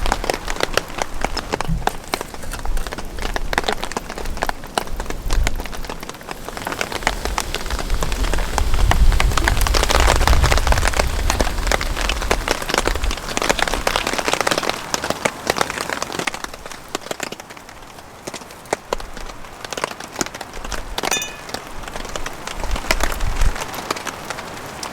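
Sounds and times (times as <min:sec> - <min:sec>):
wind rumbling on microphone: 0:00.0 - 0:14.6, 0:21.8 - 0:23.7
heavy rain drops: 0:00.0 - 0:24.9.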